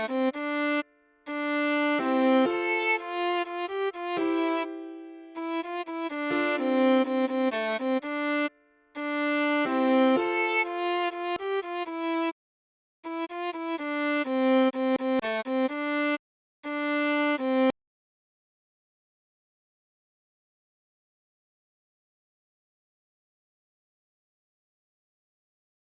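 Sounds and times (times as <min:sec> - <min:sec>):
solo viola melody: 0:00.0 - 0:12.4, 0:13.0 - 0:17.8.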